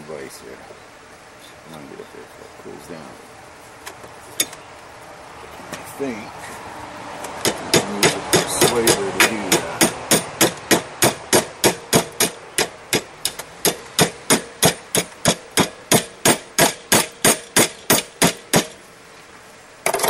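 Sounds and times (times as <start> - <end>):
hammer blows on steel: 7.4 - 18.8.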